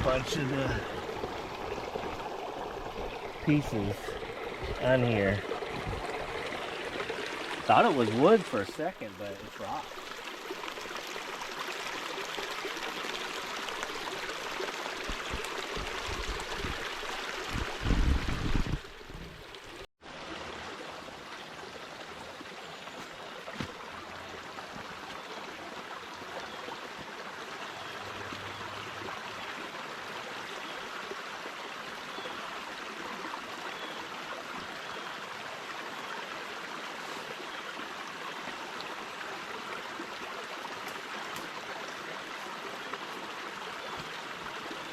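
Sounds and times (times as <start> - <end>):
creek running over rocks: 0.0 - 44.9.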